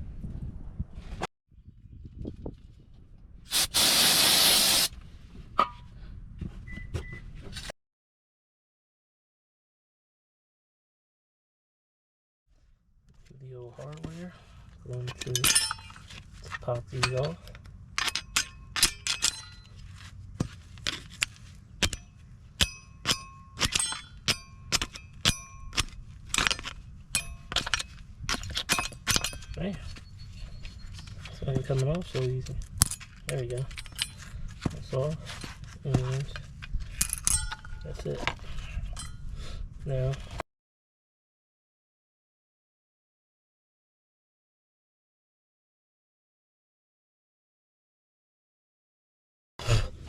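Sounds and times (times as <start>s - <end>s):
aerosol spray can spraying: 3.5s - 4.9s.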